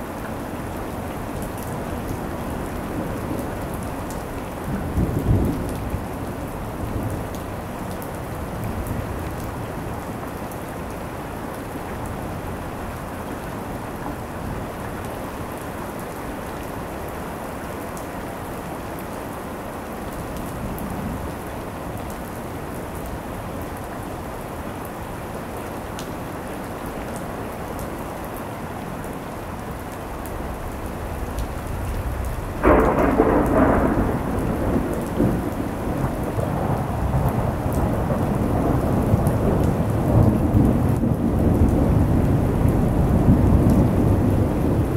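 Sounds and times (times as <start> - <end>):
steady rain: 0.0 - 44.9
thunder rumbling: 30.2 - 44.9
loud thunder clap: 32.2 - 40.3.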